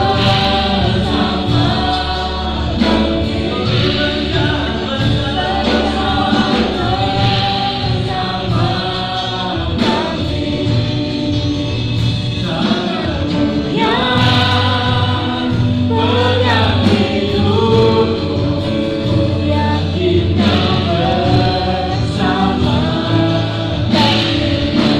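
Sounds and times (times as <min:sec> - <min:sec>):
choir singing worship song: 0:00.0 - 0:24.9
instrumental accompaniment with bass: 0:00.0 - 0:24.9.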